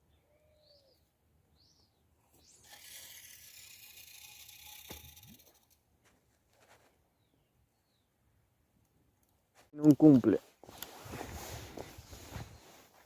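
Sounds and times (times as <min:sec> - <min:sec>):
bird chirps: 0:00.0 - 0:02.6.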